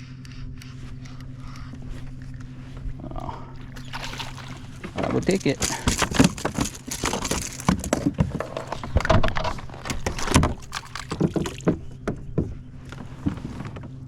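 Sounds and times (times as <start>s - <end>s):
water splashing: 3.2s - 11.9s
knocks and rattles on kayak: 3.6s - 14.0s.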